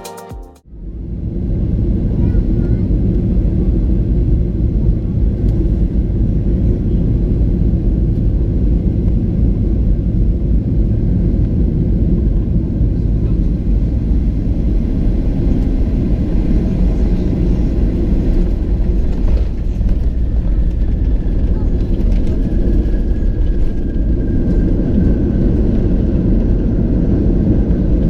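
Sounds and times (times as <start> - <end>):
airplane cabin rumble: 0.8 - 28.0.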